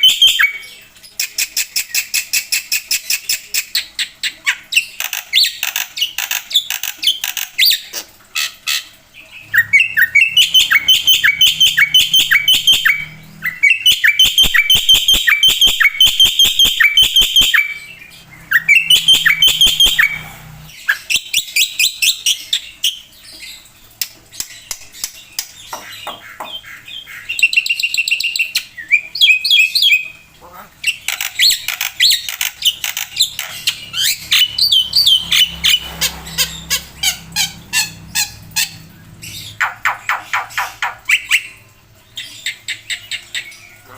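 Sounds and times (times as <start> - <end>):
bird singing harsh chirps: 8.5 - 22.7, 30.9 - 41.6.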